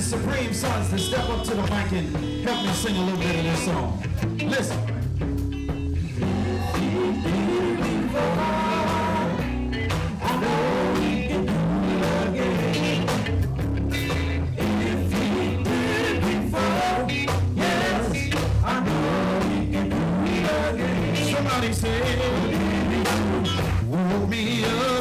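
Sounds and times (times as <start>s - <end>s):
bass: 0.0s - 25.0s
drums: 0.0s - 25.0s
gospel band playing: 0.0s - 25.0s
singing: 6.2s - 13.4s, 14.6s - 25.0s.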